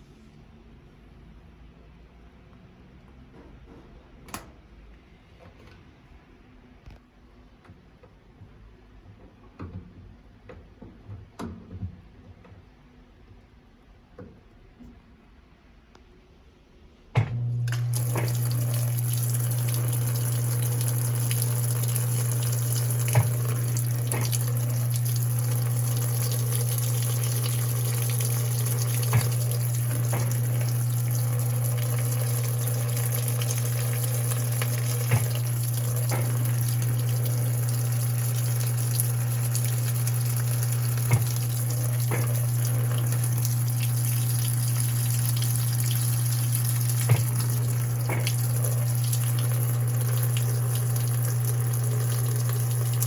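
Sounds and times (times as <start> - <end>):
electrical hum: 17.2 - 53.0
washing machine water rushing: 17.2 - 53.0.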